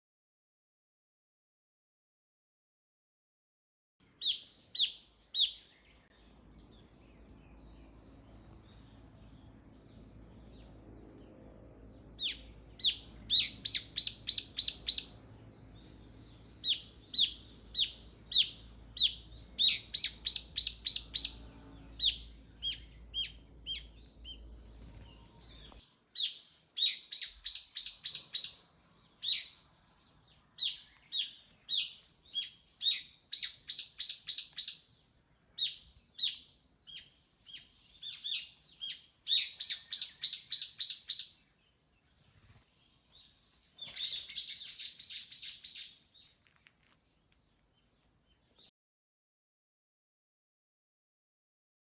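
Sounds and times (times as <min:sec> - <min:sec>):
faint low rumble: 0:05.7 - 0:25.9
songbird calling high notes: 0:12.2 - 0:15.2, 0:16.5 - 0:23.9.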